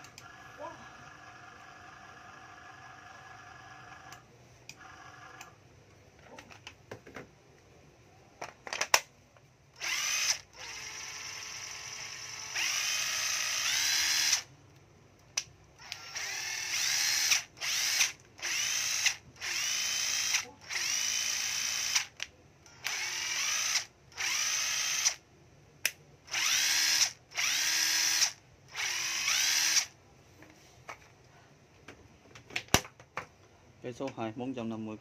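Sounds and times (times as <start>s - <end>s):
cordless drill motor whining: 9.8s - 14.5s, 15.8s - 25.2s, 26.3s - 30.0s.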